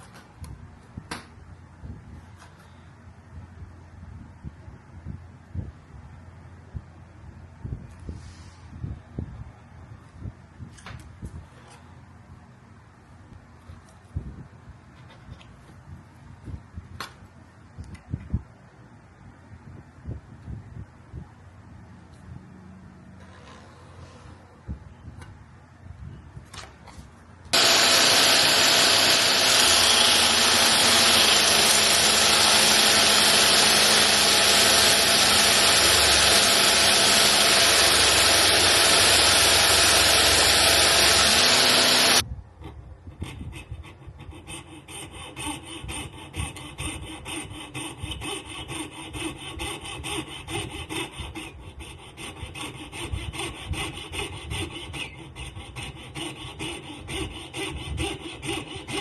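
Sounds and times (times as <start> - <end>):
loud power tool: 27.5 - 42.2
hand rasping bone: 27.6 - 42.2, 43.2 - 59.0.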